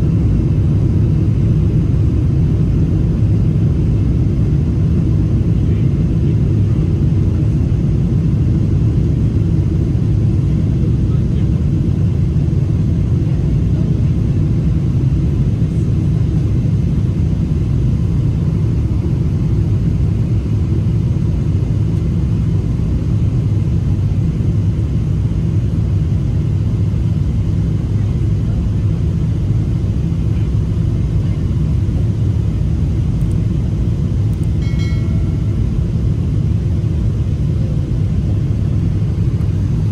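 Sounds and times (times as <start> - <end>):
aircraft cabin rumble: 0.0 - 39.9
faint tone: 34.4 - 36.3.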